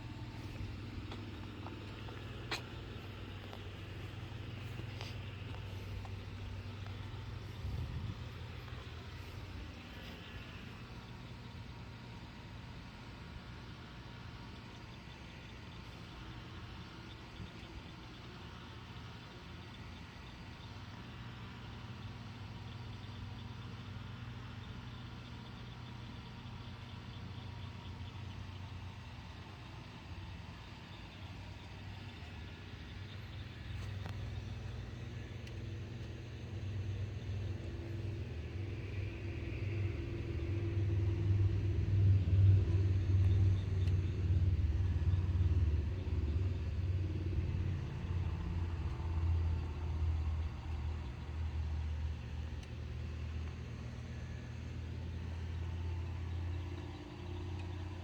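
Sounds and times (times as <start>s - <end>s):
car engine rumble: 0.0s - 11.2s, 33.0s - 57.8s.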